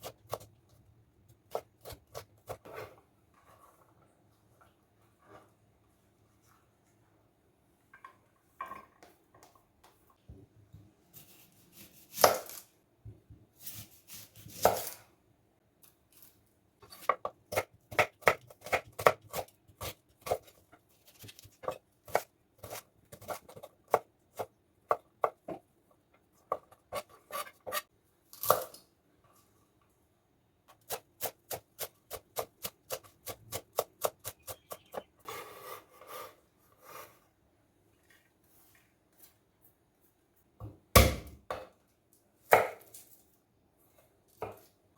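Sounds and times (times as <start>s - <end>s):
knife scraping cutting board: 26.5s - 27.9s, 34.5s - 37.2s.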